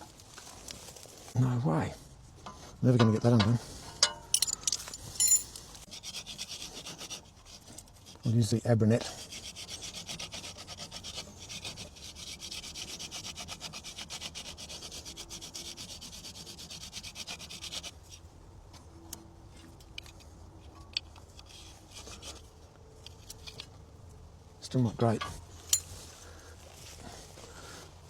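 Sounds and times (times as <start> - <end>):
hand sanding metal: 9.1 - 17.9.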